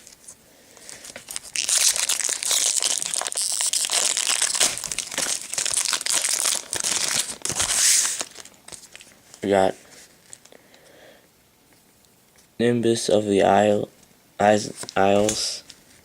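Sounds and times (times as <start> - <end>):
plastic wrapper crinkling: 0.0 - 9.5.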